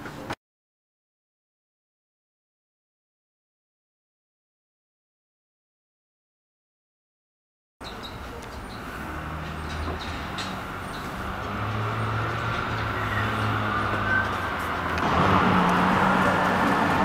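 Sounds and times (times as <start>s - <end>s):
low engine hum: 7.9s - 17.0s.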